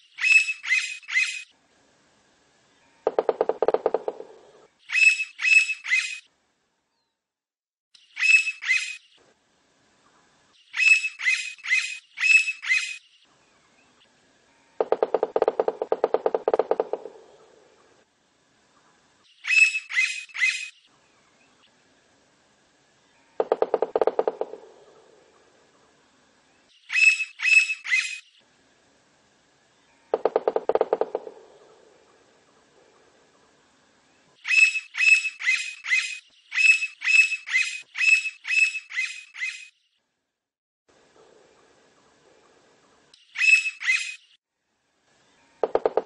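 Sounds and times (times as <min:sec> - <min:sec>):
woodpecker calling in sharp high notes: 0:00.2 - 0:01.5, 0:04.9 - 0:06.3, 0:08.1 - 0:09.0, 0:10.7 - 0:13.0, 0:19.4 - 0:20.8, 0:26.8 - 0:28.3, 0:34.4 - 0:39.8, 0:43.2 - 0:44.4.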